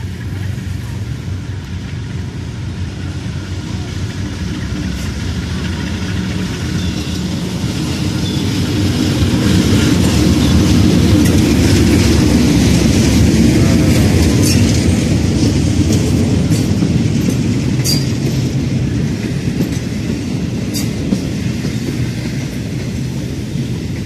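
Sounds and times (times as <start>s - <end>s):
diesel locomotive engine rumble: 0.0s - 24.0s
train brakes squealing: 4.8s - 11.4s, 16.5s - 18.6s, 20.7s - 22.4s.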